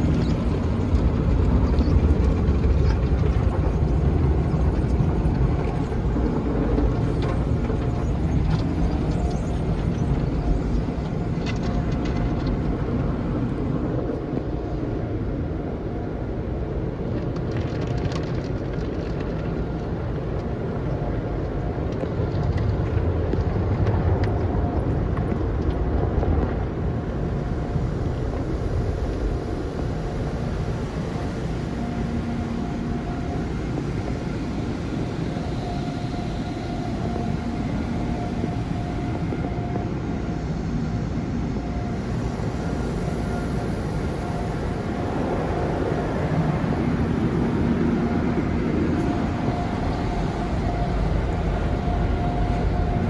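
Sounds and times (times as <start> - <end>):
car wash machinery rumbling: 0.0 - 53.0
faint hum: 0.0 - 53.0.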